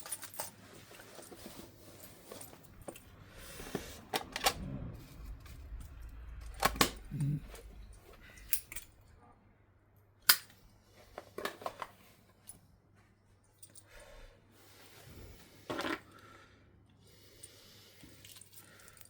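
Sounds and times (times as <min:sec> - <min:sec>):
small parts and tools clicking: 0:00.0 - 0:01.6, 0:05.2 - 0:09.1, 0:10.2 - 0:10.6.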